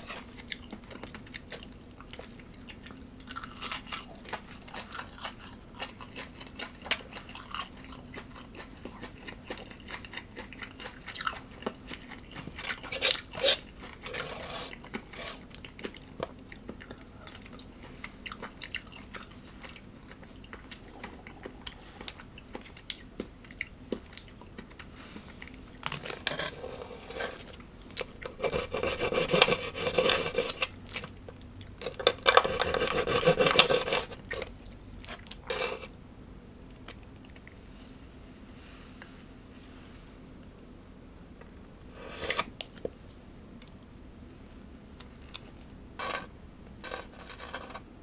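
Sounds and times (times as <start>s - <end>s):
chewing and crunching food: 0.0s - 36.0s, 36.6s - 38.2s, 41.4s - 48.0s
cutlery scraping on a dish: 28.3s - 30.8s, 31.8s - 34.2s.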